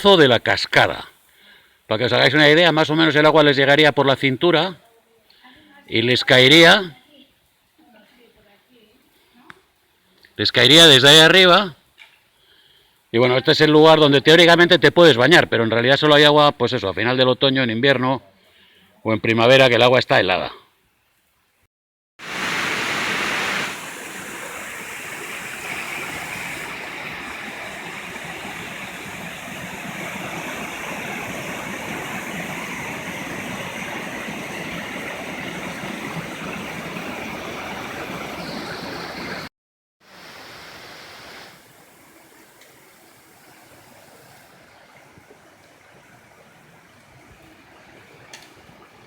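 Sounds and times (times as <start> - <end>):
stream water rushing: 22.2 - 49.0.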